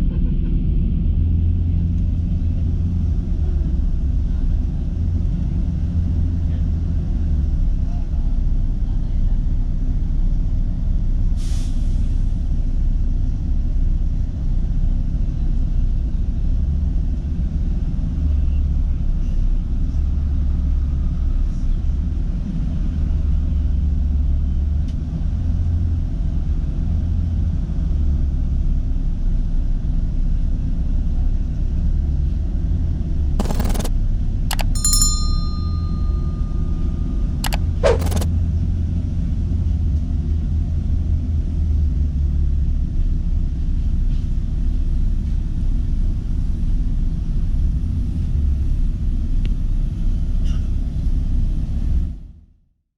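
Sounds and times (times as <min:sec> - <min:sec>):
brief tone: 0:33.4 - 0:33.9, 0:34.5 - 0:38.3
sharp clicks: 0:33.4 - 0:33.9, 0:34.5 - 0:38.3.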